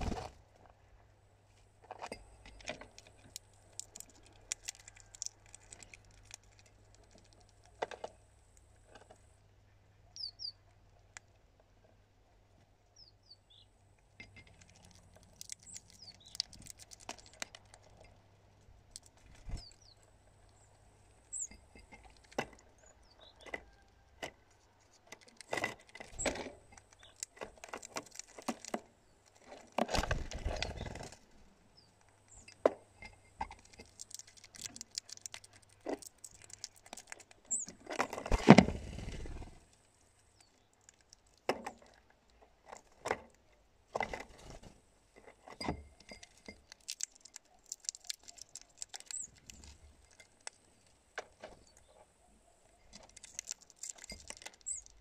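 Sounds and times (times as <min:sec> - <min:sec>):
rustling: 0:46.1 - 0:55.0.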